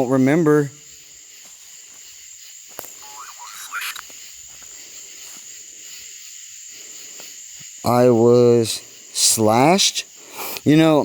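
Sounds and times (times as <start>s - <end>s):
crickets chirring: 0.0s - 11.0s
faint rising call: 3.0s - 4.0s.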